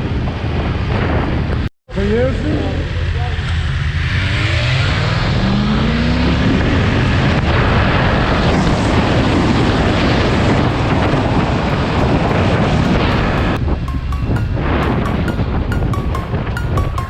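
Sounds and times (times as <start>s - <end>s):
heavy wind on microphone: 0.0s - 1.7s, 6.3s - 16.6s.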